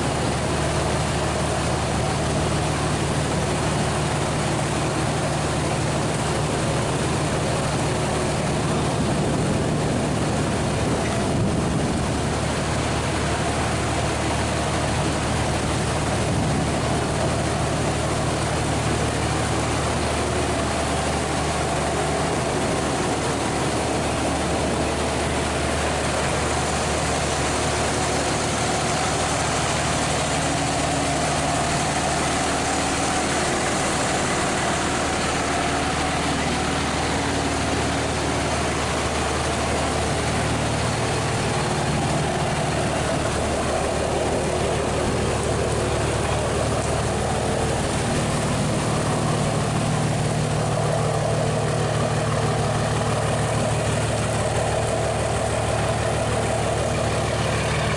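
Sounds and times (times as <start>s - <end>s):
constant rushing noise: 0.0s - 57.9s
engine running steadily: 0.0s - 57.9s.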